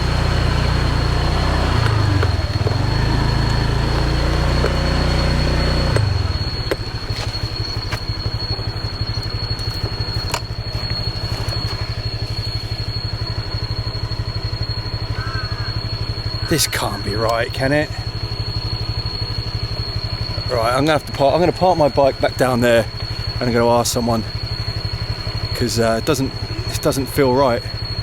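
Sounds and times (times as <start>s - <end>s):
sharp clicks: 0.0s - 12.0s
small motorbike engine: 0.0s - 28.0s.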